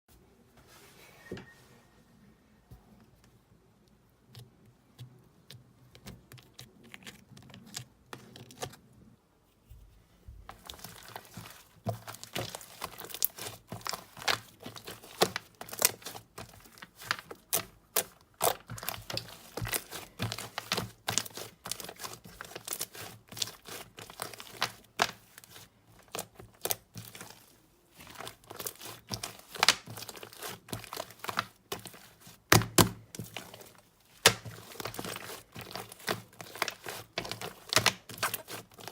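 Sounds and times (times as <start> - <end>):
slime crackling and popping: 10.5 - 38.9.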